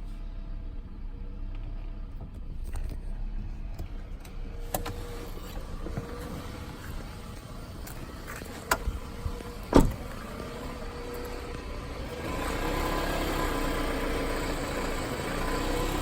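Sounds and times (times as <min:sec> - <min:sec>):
car engine running: 0:00.0 - 0:16.0
thump: 0:09.7 - 0:10.0.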